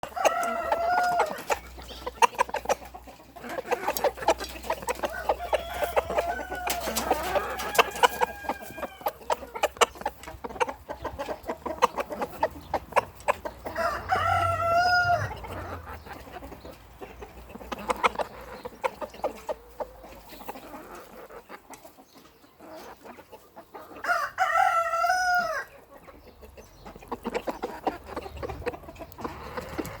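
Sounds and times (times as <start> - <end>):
rooster crowing: 0.0 - 1.4, 5.1 - 9.2, 13.7 - 15.8, 24.0 - 25.7
chickens clucking: 0.0 - 30.0.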